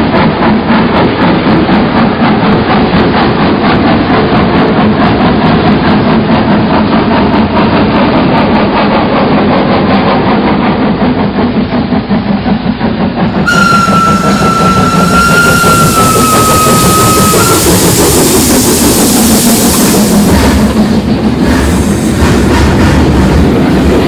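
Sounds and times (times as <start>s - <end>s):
train clattering on rails: 0.0s - 24.0s
high train whistle: 13.4s - 20.6s.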